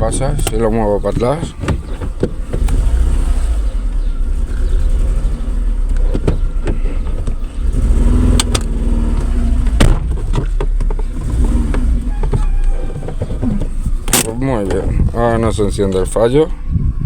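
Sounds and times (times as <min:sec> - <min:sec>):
car engine running: 0:00.0 - 0:16.6
sharp engine knocks: 0:00.2 - 0:03.2, 0:03.9 - 0:15.0.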